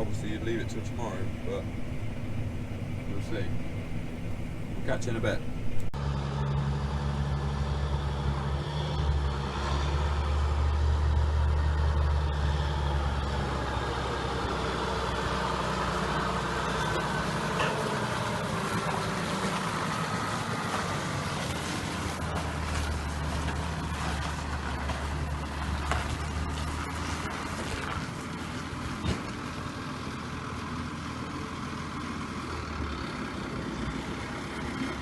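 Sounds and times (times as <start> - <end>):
even mechanical hum: 0.0 - 6.0
low engine drone: 0.0 - 35.0.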